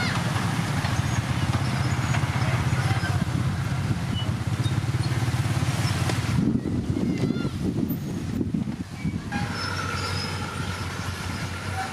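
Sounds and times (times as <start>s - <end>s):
diesel machinery engine running: 0.0s - 7.0s, 7.6s - 11.9s.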